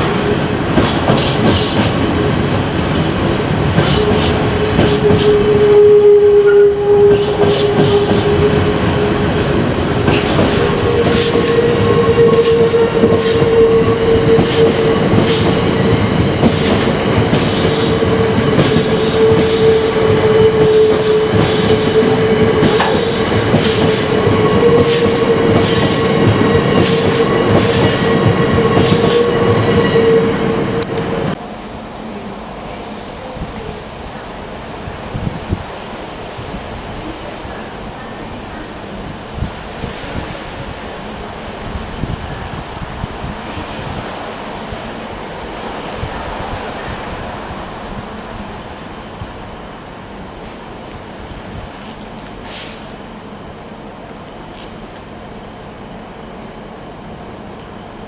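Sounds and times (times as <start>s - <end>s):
train whine: 0.0s - 58.0s
train wheels clattering over rail joints: 0.7s - 5.4s, 9.7s - 11.7s, 14.3s - 29.4s.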